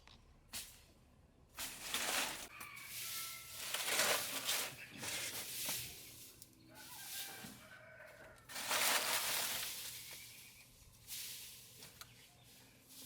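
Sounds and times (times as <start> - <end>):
rooster crowing: 2.4 - 4.0, 6.7 - 8.9.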